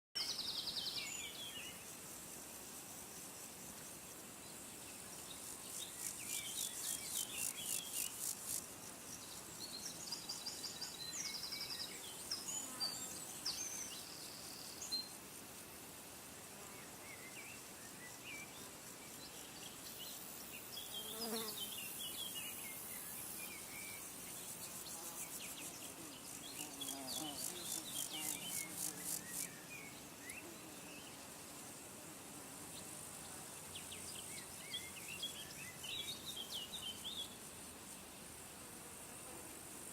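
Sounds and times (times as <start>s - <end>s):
faint steady hiss: 0.2s - 39.9s.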